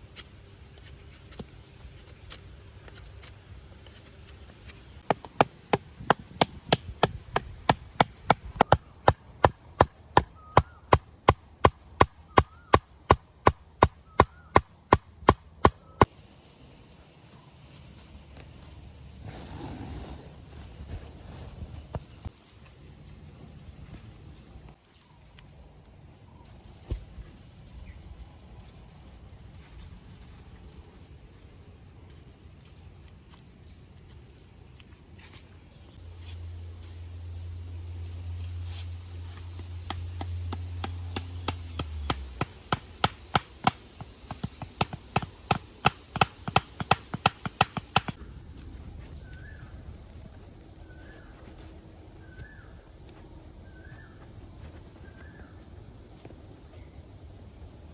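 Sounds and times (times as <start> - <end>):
high insect-like drone: 25.9 - 57.9
rapid sharp knocks: 40.8 - 48.2.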